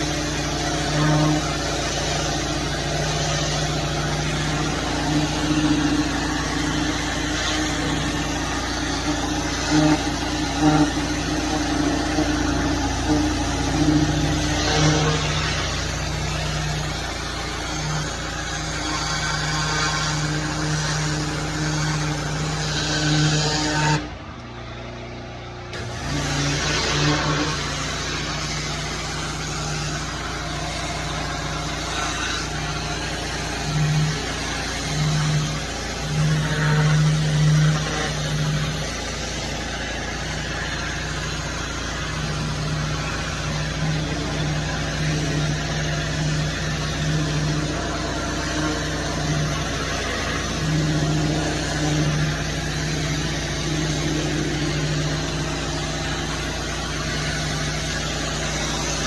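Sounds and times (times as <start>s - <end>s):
small petrol engine running: 0.0s - 59.0s
rushing hiss of spray: 25.8s - 59.0s.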